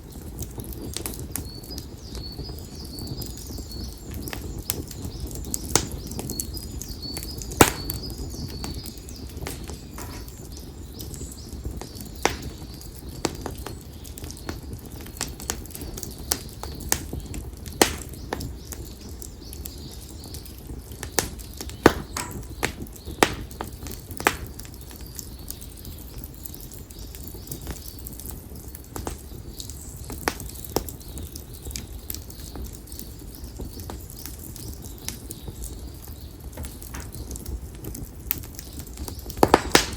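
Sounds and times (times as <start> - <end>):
firewood popping and crackling: 0.0 - 39.9
low rumble of flames: 0.0 - 39.9.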